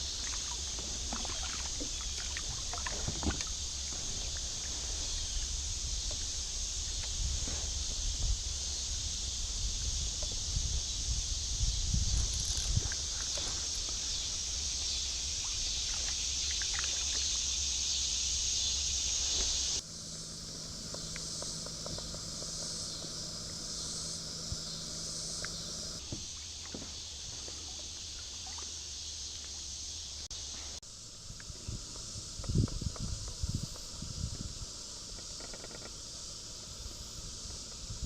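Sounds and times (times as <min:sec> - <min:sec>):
steady high hiss: 0:00.0 - 0:38.0.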